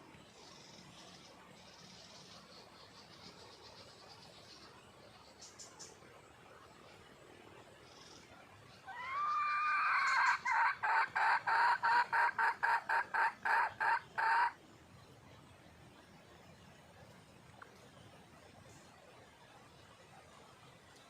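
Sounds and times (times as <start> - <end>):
hen calling and clucking: 8.6 - 14.8.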